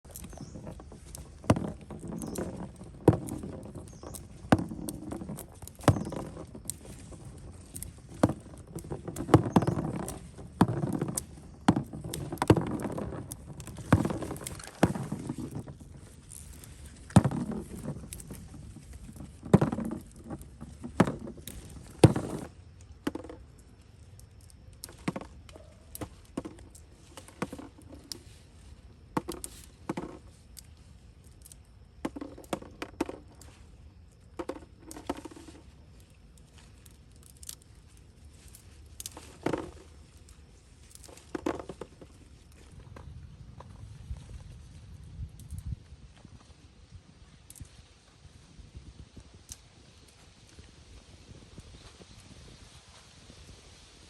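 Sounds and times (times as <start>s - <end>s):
rustling: 0.0s - 23.3s.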